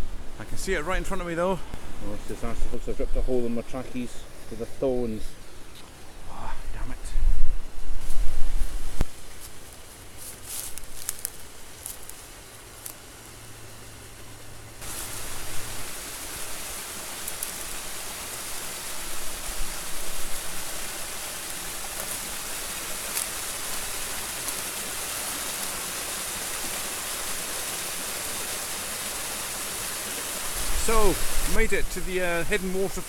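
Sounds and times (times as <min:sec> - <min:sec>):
light crackles and rustles: 0:06.7 - 0:13.2, 0:14.8 - 0:27.4
small waterfall rushing: 0:11.5 - 0:33.0.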